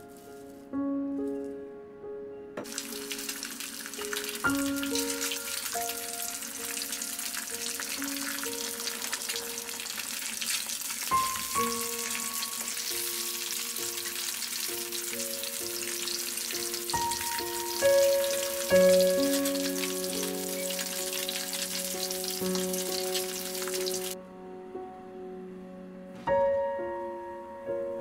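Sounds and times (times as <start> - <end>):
gentle melody of single notes: 0.0 - 10.1, 11.1 - 28.0
sausages and egg frying: 2.6 - 24.2.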